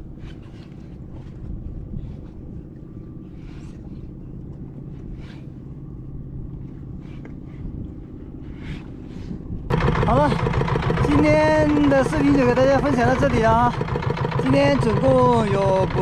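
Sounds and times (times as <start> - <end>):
motor humming: 8.5 - 16.0.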